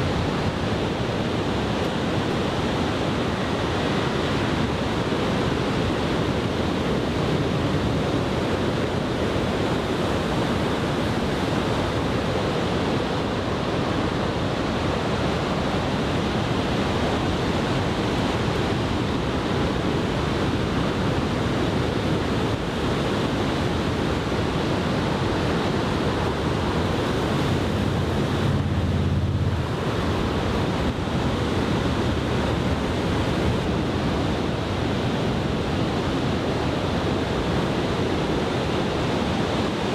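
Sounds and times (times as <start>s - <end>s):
surf waves breaking: 0.0s - 39.9s
wind buffeting microphone: 23.8s - 35.8s.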